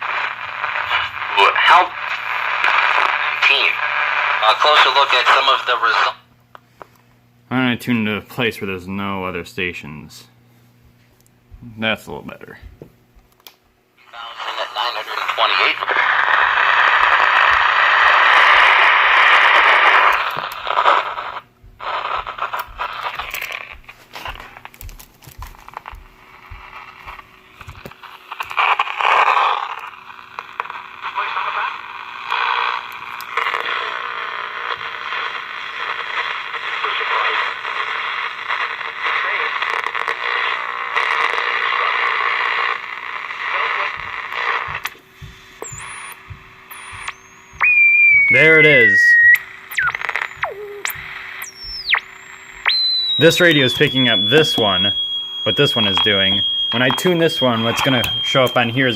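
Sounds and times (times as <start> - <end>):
radio static hiss: 0.0 - 6.9, 14.0 - 58.9
radio crackling: 0.0 - 10.4, 11.5 - 58.9
faint high whistle: 46.8 - 50.8, 52.7 - 56.9.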